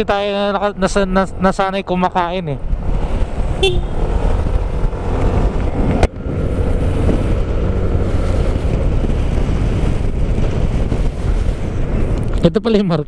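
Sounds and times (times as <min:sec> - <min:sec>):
wind buffeting microphone: 0:00.0 - 0:12.8
motorcycle engine running: 0:02.6 - 0:12.0.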